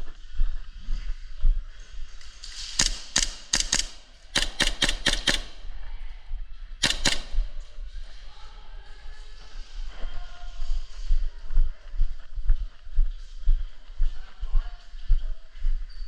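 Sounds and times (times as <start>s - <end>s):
airsoft gun shots: 2.6s - 5.8s, 6.8s - 7.8s.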